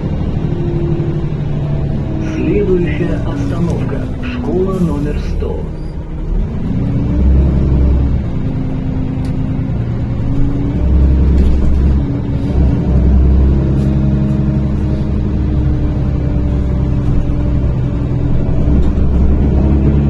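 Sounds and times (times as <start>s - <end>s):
bus engine drone: 0.0s - 20.0s.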